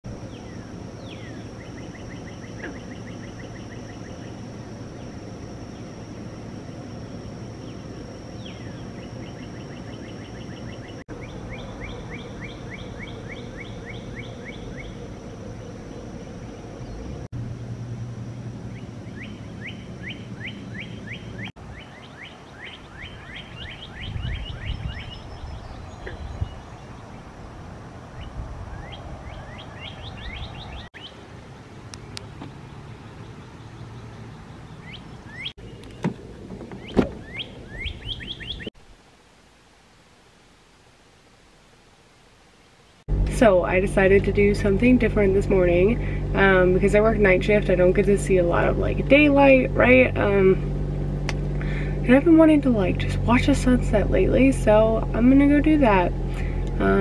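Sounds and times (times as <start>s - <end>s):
low background rumble: 0.0s - 21.8s, 43.0s - 57.0s
songbird chirping: 0.0s - 39.3s.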